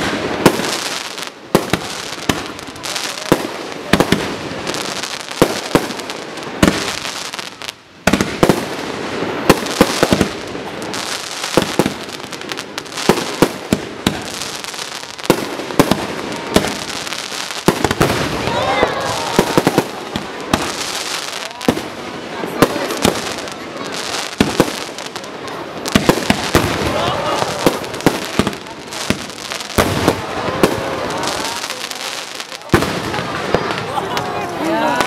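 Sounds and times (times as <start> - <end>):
fireworks bursts and booms: 0.0 - 35.0
fireworks crackling: 0.0 - 35.0.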